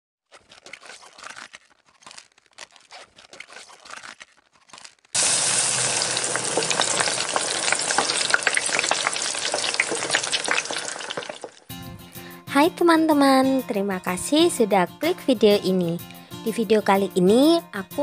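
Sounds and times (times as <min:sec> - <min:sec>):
faint crackles: 0:00.3 - 0:11.7
food sizzling in hot oil: 0:05.1 - 0:11.7.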